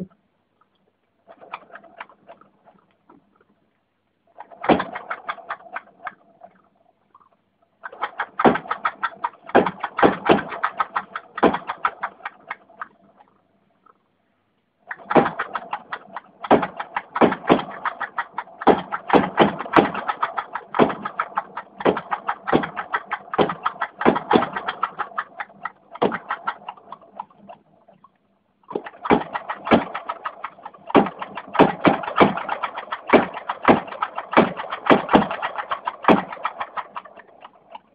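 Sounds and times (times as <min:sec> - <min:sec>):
gas engine popping and knocking: 0:04.4 - 0:06.2, 0:07.8 - 0:13.0, 0:14.9 - 0:27.6, 0:28.7 - 0:37.9.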